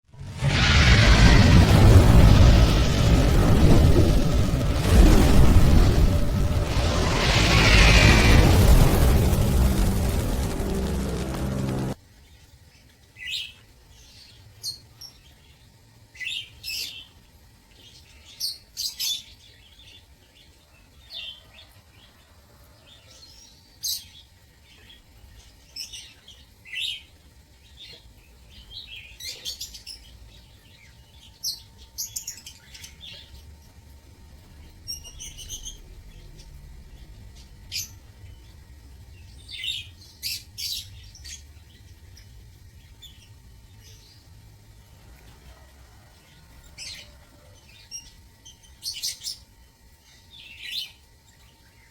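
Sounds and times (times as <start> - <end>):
faint low rumble: 0.0 - 12.0, 31.8 - 49.3.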